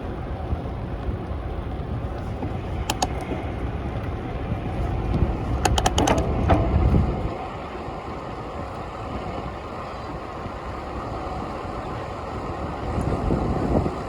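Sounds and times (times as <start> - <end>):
passing city traffic: 0.0 - 14.0
wind buffeting microphone: 0.0 - 14.0
sharp clicks or rattles: 2.8 - 3.4, 5.6 - 6.9.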